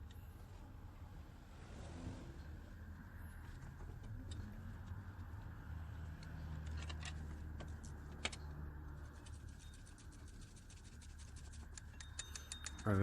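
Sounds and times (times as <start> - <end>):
low steady hum: 0.0 - 13.0
metallic clicks of hand tools: 11.7 - 13.0.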